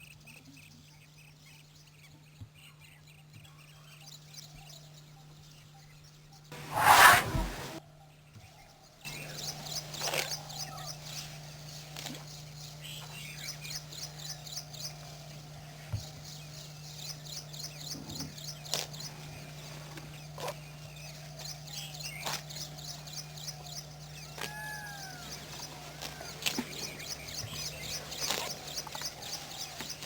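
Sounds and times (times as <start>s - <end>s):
birds chirping: 9.1s - 30.0s.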